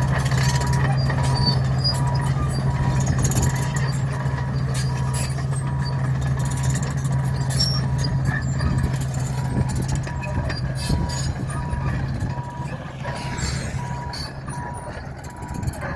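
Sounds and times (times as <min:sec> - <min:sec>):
bulldozer diesel engine humming: 0:00.0 - 0:15.9
reversing alarm beeping: 0:09.4 - 0:15.9.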